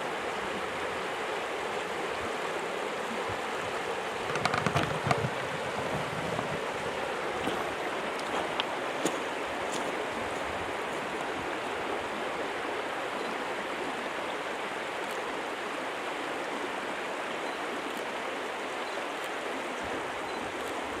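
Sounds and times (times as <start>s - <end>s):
stream running over rocks: 0.0s - 21.0s.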